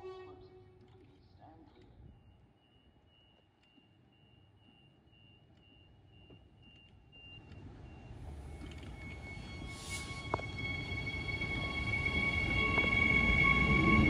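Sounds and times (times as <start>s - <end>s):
train rumble: 7.4s - 14.0s.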